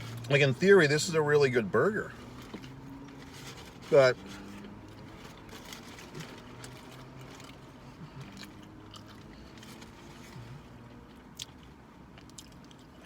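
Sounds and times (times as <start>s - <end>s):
person chewing food: 6.0s - 13.0s.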